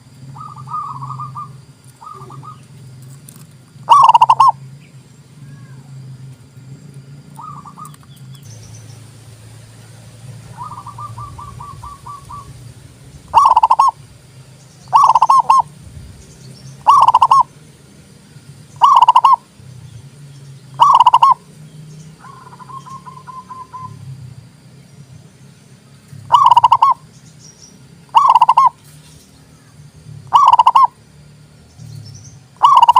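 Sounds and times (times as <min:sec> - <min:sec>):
dove cooing: 0:00.2 - 0:02.8, 0:03.8 - 0:04.7, 0:07.4 - 0:14.2, 0:14.9 - 0:15.8, 0:16.8 - 0:17.6, 0:18.8 - 0:19.6, 0:20.8 - 0:24.1, 0:26.2 - 0:27.1, 0:28.1 - 0:28.8, 0:30.2 - 0:31.0, 0:32.6 - 0:32.9.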